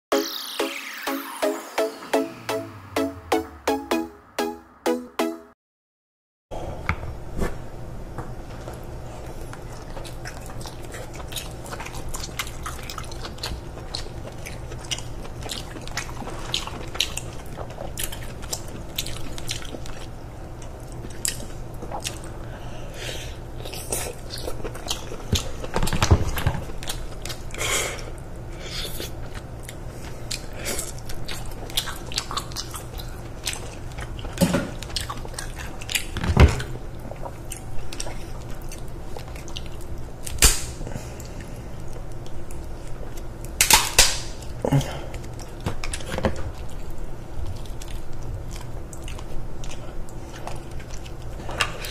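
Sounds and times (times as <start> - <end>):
wet biting and chewing: 8.7 - 22.4, 28.8 - 36.2, 37.0 - 51.9.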